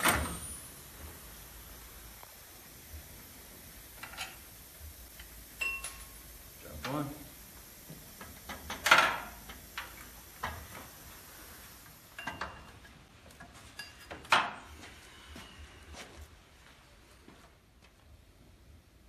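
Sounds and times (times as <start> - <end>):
metal tools clinking and clanking: 13.7 - 14.4.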